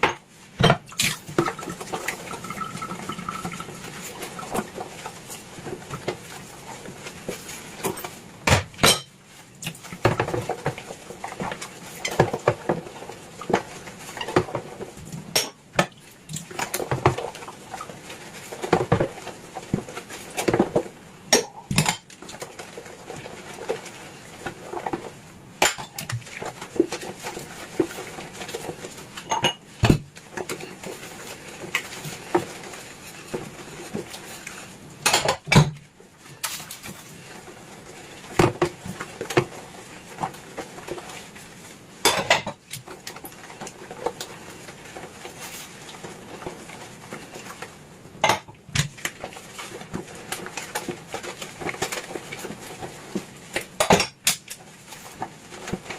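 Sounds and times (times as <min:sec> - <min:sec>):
dishes and cutlery clinking: 0:08.8 - 0:09.2.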